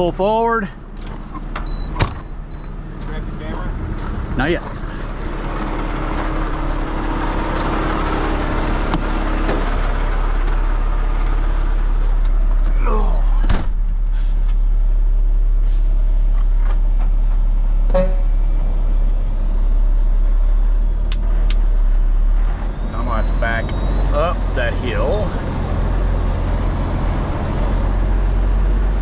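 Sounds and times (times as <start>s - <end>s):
heavy diesel truck engine running: 0.0s - 29.0s.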